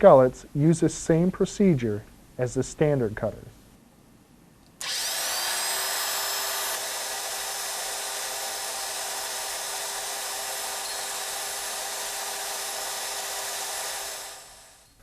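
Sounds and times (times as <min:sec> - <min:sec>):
grinding motor whining: 0:04.8 - 0:14.9.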